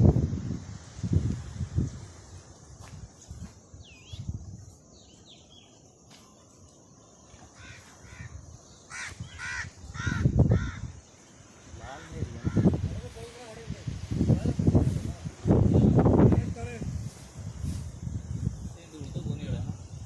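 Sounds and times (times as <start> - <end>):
crow cawing: 7.6 - 11.1, 12.4 - 12.8.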